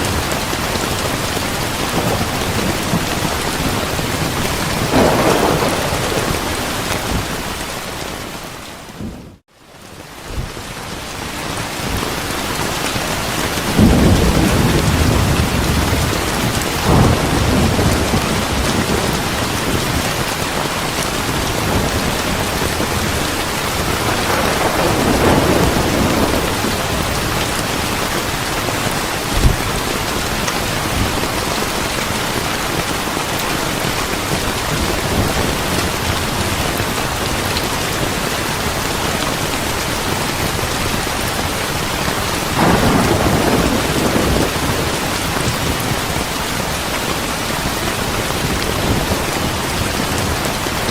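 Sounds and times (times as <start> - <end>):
rolling thunder: 0.0 - 9.4, 13.5 - 28.5, 42.3 - 46.8
heavy rain: 0.0 - 50.9.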